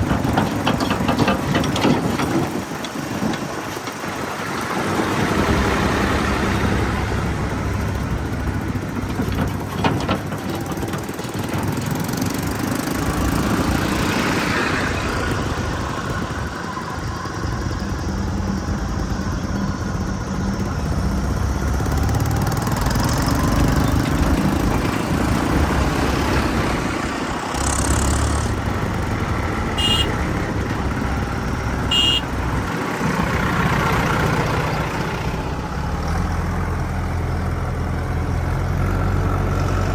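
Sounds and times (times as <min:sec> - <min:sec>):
diesel machinery engine running: 0:00.0 - 0:39.9
high squeaks: 0:27.5 - 0:28.6.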